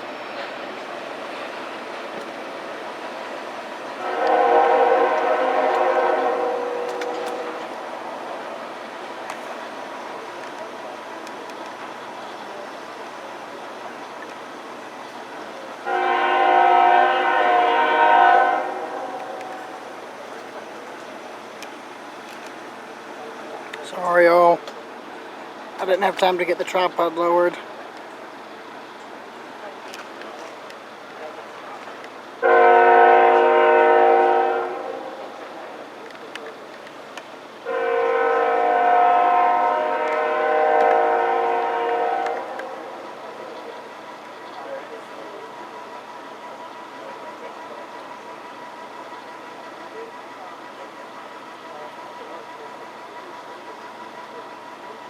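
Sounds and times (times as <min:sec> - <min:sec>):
passing train noise: 0:00.0 - 0:55.0
locomotive air horn blast: 0:04.0 - 0:07.9, 0:15.8 - 0:19.9, 0:32.4 - 0:35.4, 0:37.6 - 0:43.0.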